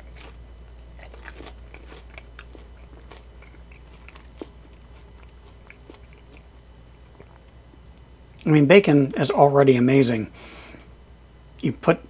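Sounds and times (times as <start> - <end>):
person chewing crunchy food: 0.0 - 8.5
low steady hum: 0.0 - 12.0.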